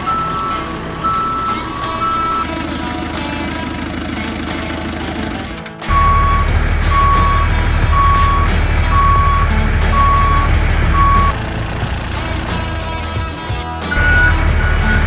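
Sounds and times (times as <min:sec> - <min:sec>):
reversing alarm beeping: 0:00.0 - 0:02.6, 0:05.9 - 0:11.5, 0:13.9 - 0:15.0
low engine rumble: 0:00.0 - 0:15.0.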